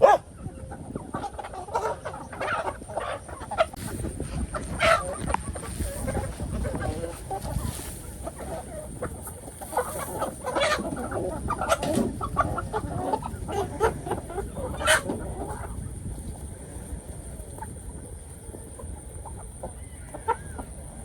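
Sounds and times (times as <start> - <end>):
chickens clucking and squawking: 0.0 - 21.0.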